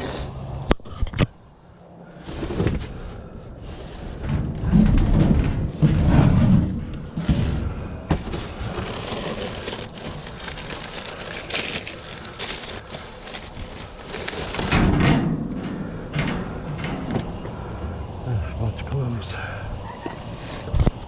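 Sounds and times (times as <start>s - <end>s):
trash rustling and crackling: 2.2s - 17.5s.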